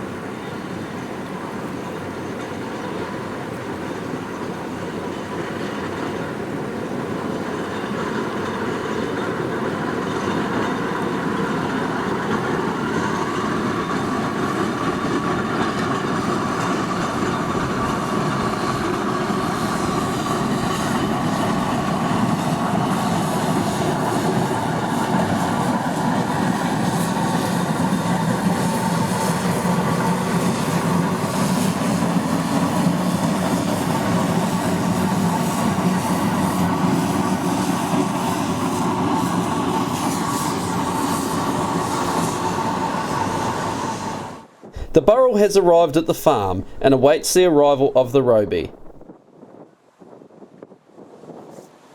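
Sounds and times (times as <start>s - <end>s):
steam traction engine chuffing: 0.0s - 44.4s.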